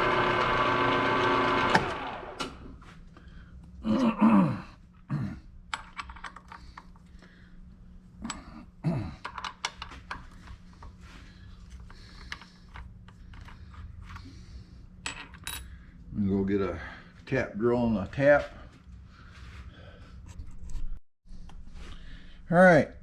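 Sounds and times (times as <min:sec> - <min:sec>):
steady low hum: 0:02.7 - 0:23.0
metal tools clinking: 0:15.0 - 0:15.7.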